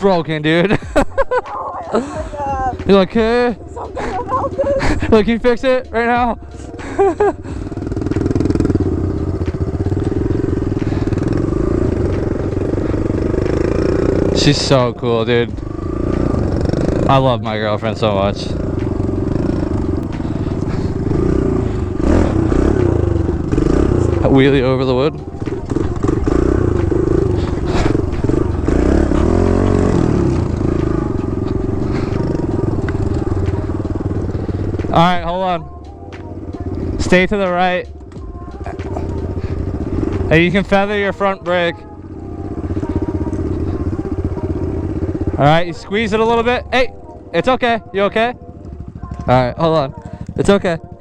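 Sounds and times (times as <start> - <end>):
dirt bike engine running: 0.0 - 51.0.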